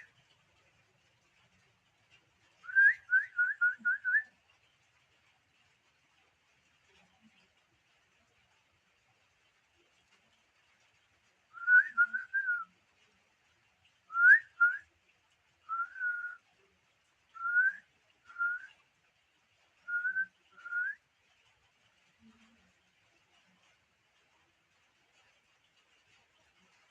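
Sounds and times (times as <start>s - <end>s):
pet bird whistling: 2.7s - 4.2s, 11.6s - 12.6s, 14.1s - 14.8s, 15.7s - 16.4s, 17.4s - 18.7s, 19.9s - 21.0s.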